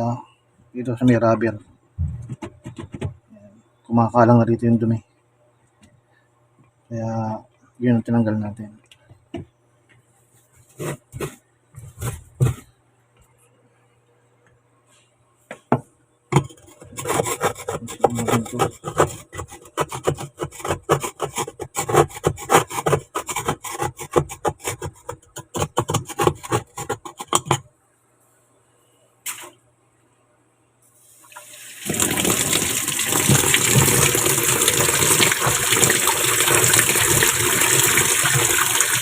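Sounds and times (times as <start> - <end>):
rapid scrubbing: 16.7 - 27.3.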